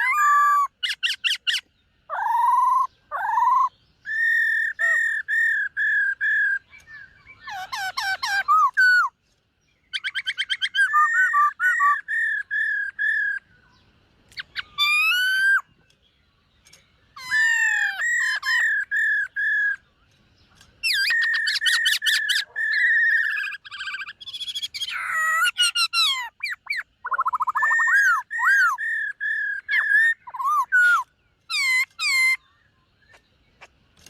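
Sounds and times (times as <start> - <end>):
laughingthrush singing: 0.0 - 9.2, 20.8 - 32.4.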